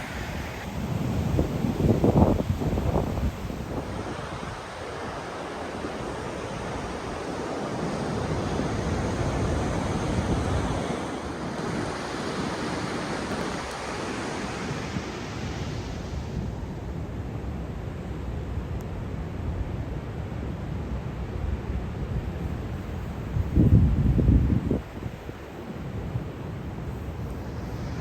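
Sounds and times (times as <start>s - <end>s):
wind buffeting microphone: 0.0s - 4.7s, 23.0s - 25.5s
ocean surf breaking: 0.0s - 16.5s, 25.7s - 28.0s.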